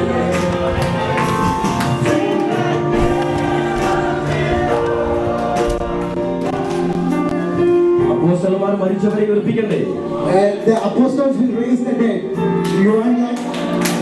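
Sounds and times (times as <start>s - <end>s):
group singing worship music: 0.0s - 11.5s, 12.6s - 14.0s
sustained instrumental chords: 2.7s - 8.2s.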